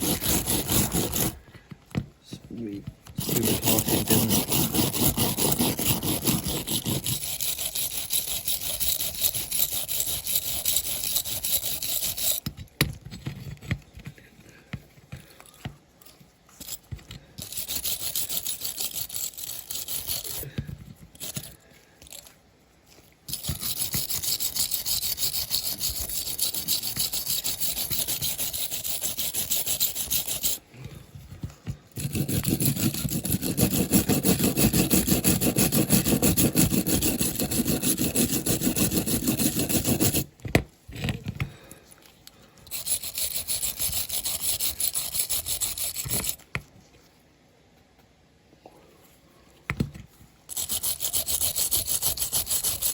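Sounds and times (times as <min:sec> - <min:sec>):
wire brush scrubbing metal: 0:00.0 - 0:01.4, 0:03.2 - 0:12.4, 0:17.4 - 0:20.5, 0:23.3 - 0:30.7, 0:32.0 - 0:40.3, 0:42.7 - 0:46.4, 0:50.5 - 0:52.9.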